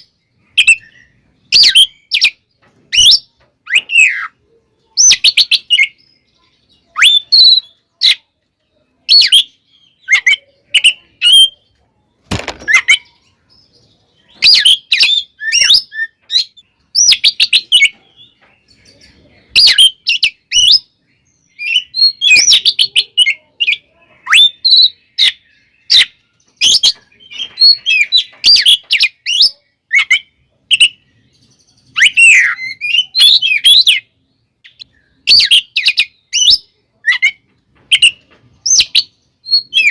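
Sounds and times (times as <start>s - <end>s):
bird singing whistles: 6.8s - 7.7s, 14.3s - 17.9s, 19.6s - 20.9s, 21.5s - 23.4s, 31.9s - 34.1s, 34.7s - 39.9s.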